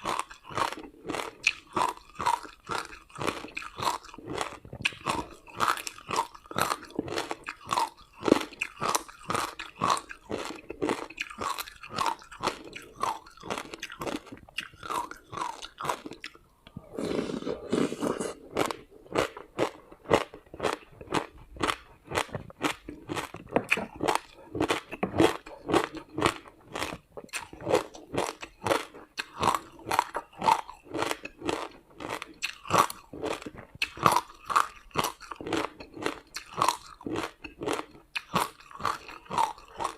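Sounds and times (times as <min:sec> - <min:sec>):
crunching and chewing ice: 0:00.0 - 0:16.4, 0:17.0 - 0:39.9.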